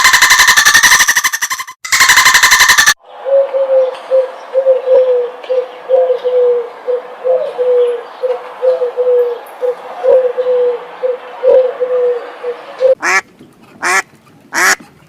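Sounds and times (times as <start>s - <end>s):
dove cooing: 3.2s - 13.0s.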